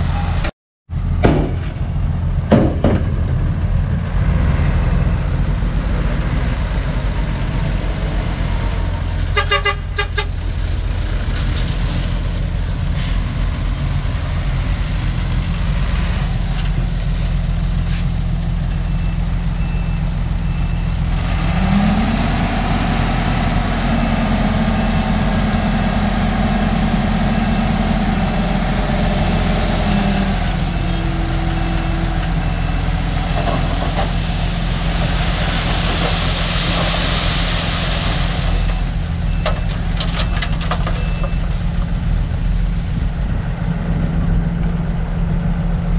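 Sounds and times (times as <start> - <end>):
diesel machinery engine running: 0.0 - 45.9
reversing alarm beeping: 38.5 - 41.6.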